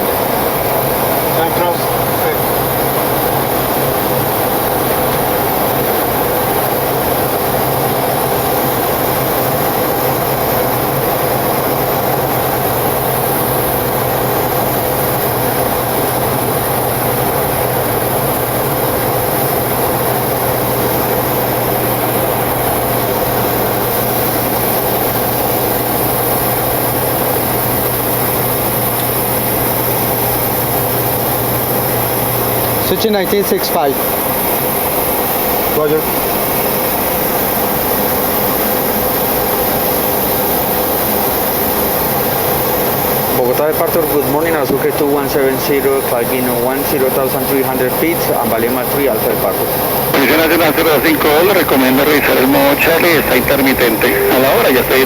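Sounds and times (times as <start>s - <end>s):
jet engines in cockpit: 0.0s - 55.0s
steady low hum: 43.2s - 55.0s.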